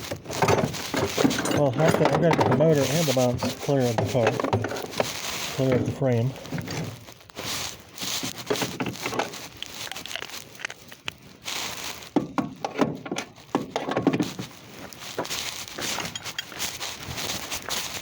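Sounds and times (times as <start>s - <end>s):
tools clicking and knocking: 0.0s - 5.1s, 12.2s - 14.5s, 15.8s - 16.7s
rustling on the ground: 0.0s - 18.0s.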